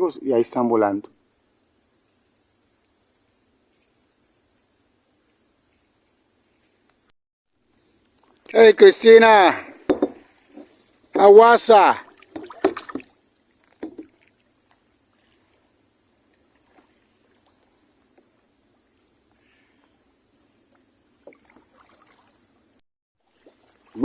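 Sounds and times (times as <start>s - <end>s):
shrill insect chorus: 0.0s - 24.0s
faint knocks: 9.8s - 11.4s, 12.1s - 13.1s, 13.8s - 14.2s.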